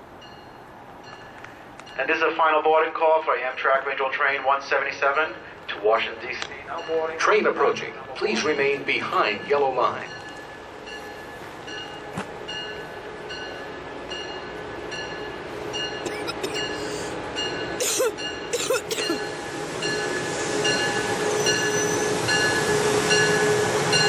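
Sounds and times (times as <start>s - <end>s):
train approaching: 0.0s - 24.0s.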